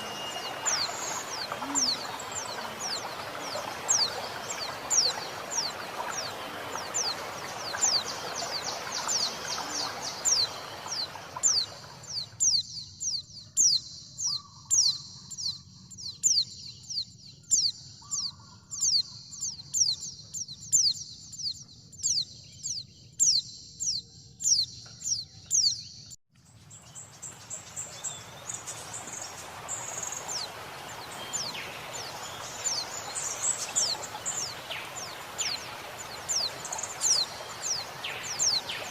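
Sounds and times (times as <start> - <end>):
running water hissing: 0.0 - 12.3, 27.2 - 38.9.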